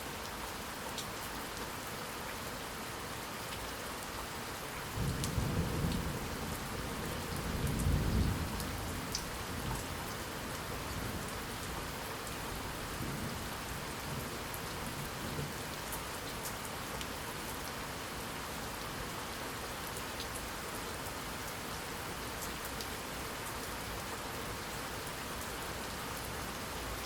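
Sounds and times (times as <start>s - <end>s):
rain falling: 0.0s - 27.0s
low rolling thunder: 4.9s - 9.1s.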